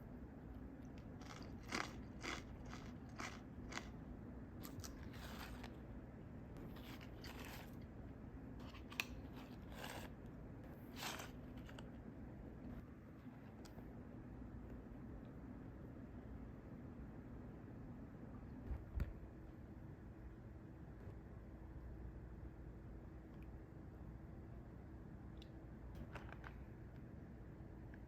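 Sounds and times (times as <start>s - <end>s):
rice crackers crunching: 1.0s - 4.0s, 4.6s - 5.8s.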